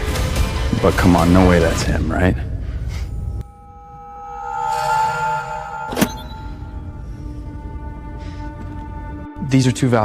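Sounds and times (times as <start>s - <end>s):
sustained drone music: 2.6s - 9.9s
sharp hit: 3.4s - 7.2s.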